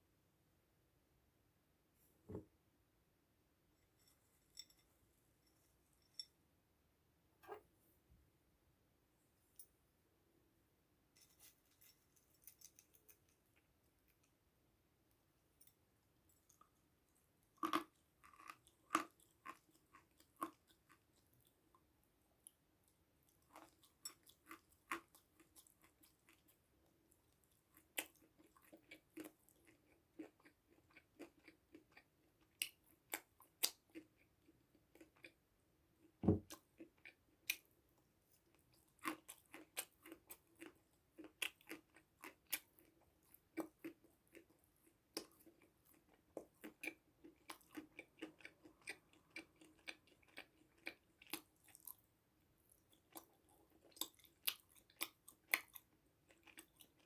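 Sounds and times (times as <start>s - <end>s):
close-miked chewing and crunching: 16.3s - 57.0s.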